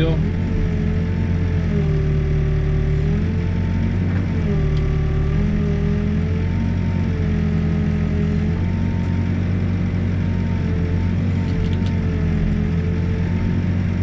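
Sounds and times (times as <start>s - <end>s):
hydraulic whine: 0.0s - 9.6s
diesel engine under load: 0.0s - 14.0s.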